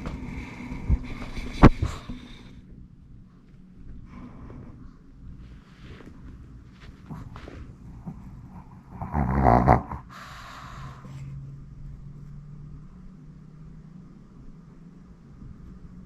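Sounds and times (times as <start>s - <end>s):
dog snoring: 7.0s - 11.2s
breathy exhale: 10.0s - 11.3s.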